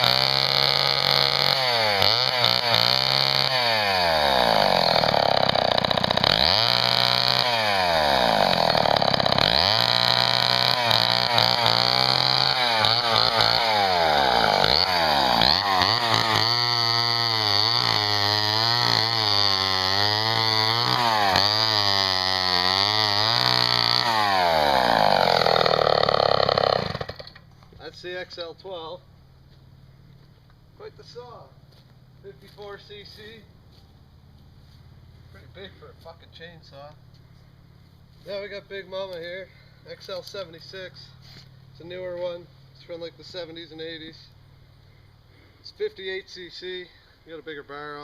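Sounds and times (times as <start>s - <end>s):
chainsaw engine revving: 0.0s - 27.4s.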